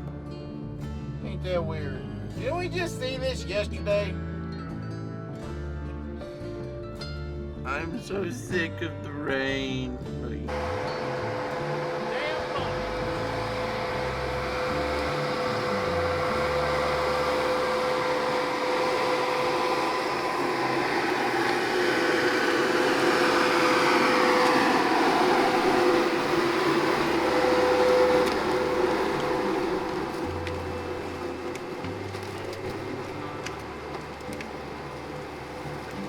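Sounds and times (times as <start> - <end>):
diesel engine and hydraulics whining: 10.5 - 36.0.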